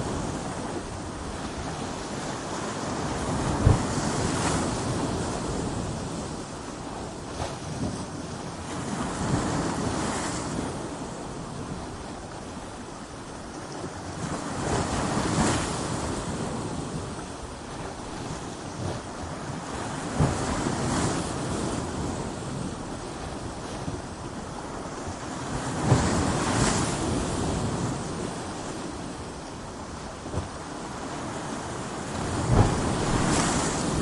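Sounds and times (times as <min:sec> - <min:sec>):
ocean waves breaking on rocks: 0:00.0 - 0:34.0.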